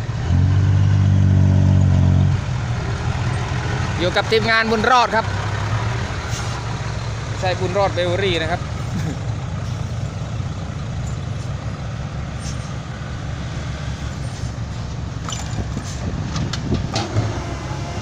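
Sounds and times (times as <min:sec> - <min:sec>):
diesel truck engine rumbling: 0:00.0 - 0:18.0
rattles and knocks: 0:14.9 - 0:17.2.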